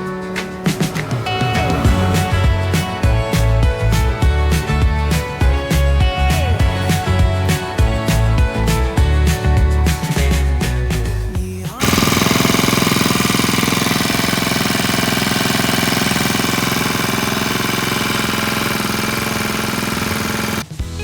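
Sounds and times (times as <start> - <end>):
background music: 0.0 - 12.0
brush cutter engine running: 0.0 - 20.6.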